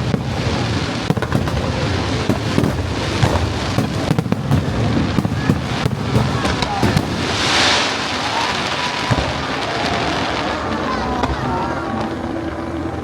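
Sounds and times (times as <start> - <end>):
fireworks cracks and bangs: 0.0 - 11.8
low fireworks booms: 0.0 - 12.6
fireworks crackle: 0.0 - 12.7.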